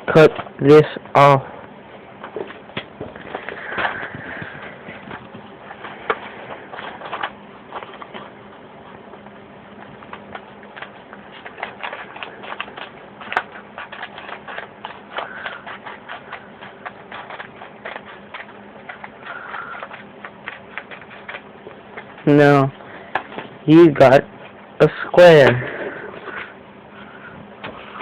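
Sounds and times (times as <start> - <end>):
paper rustling: 2.2 - 24.6
scissors snipping paper: 9.8 - 23.3.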